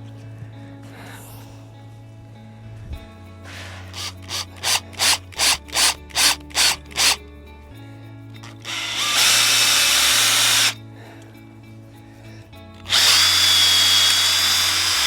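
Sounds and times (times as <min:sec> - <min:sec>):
power drill driving screw into wood: 0:03.9 - 0:07.2, 0:08.4 - 0:10.8, 0:12.9 - 0:15.0.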